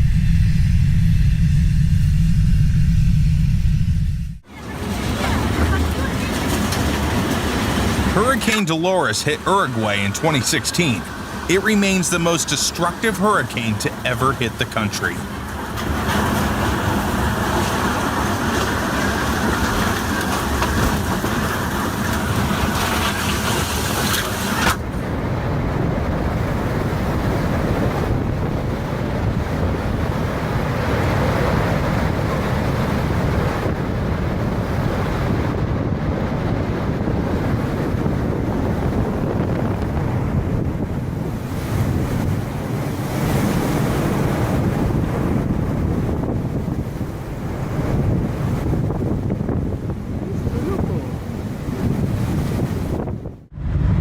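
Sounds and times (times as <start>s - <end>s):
strong storm wind: 0.0s - 54.0s
wind buffeting microphone: 15.2s - 54.0s.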